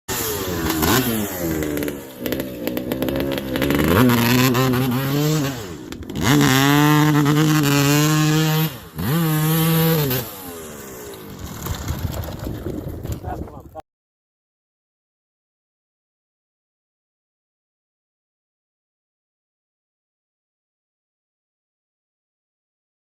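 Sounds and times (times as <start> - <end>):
two-stroke motorcycle engine revving: 0.1 - 13.4.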